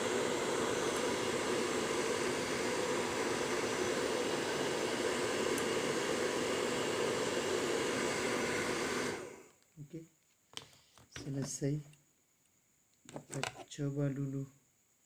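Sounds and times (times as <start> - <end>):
electric air blower hissing: 0.0 - 9.6.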